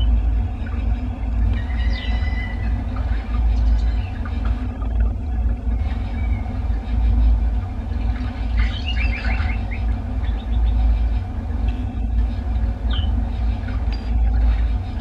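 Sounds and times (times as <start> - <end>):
songbird chirping: 0.0 - 4.7, 7.9 - 11.1
steady low rumble: 0.0 - 15.0.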